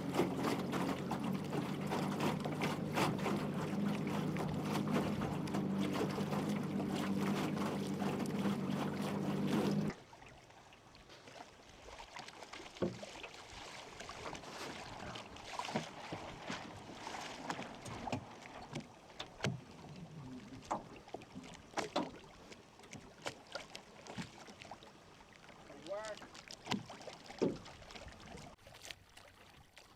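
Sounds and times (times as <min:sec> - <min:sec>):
water lapping at boat hull: 0:00.0 - 0:29.9.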